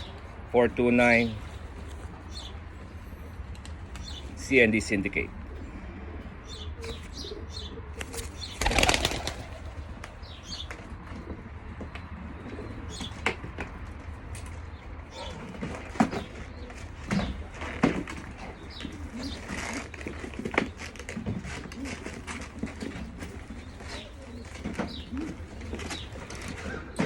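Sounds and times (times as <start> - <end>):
pigeons cooing: 0.0 - 13.5, 14.4 - 27.0
wings flapping: 8.0 - 10.8.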